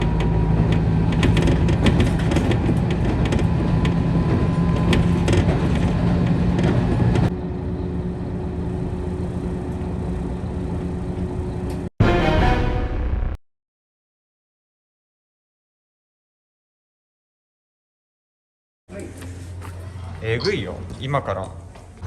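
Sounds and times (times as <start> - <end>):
train engine droning: 0.0 - 13.4.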